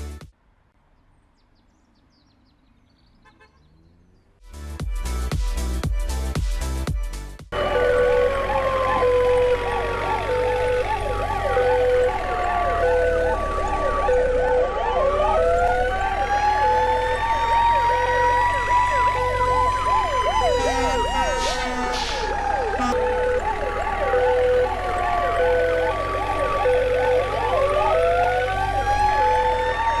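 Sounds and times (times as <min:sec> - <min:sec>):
siren wailing: 0:07.5 - 0:30.0
siren yelping: 0:07.5 - 0:30.0
two-tone hi-lo siren: 0:07.5 - 0:30.0.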